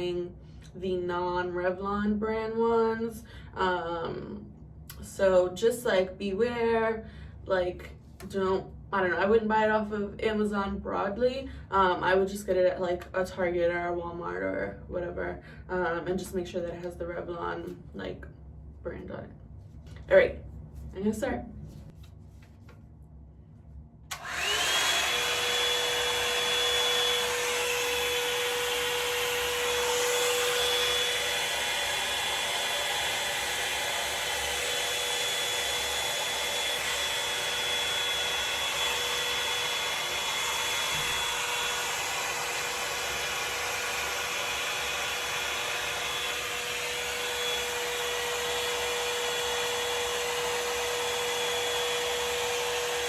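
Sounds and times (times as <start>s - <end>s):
hot-air brush whining: 24.1s - 53.0s.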